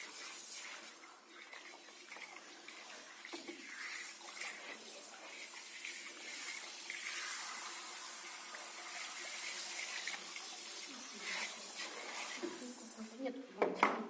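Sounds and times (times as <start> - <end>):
water running into bathtub: 0.0 - 13.2.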